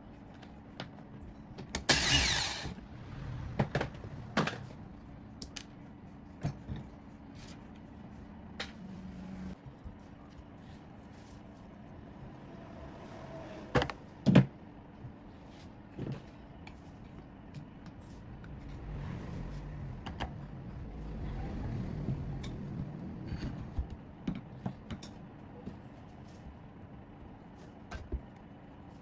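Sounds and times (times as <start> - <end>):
faint low rumble: 17.9 - 24.2.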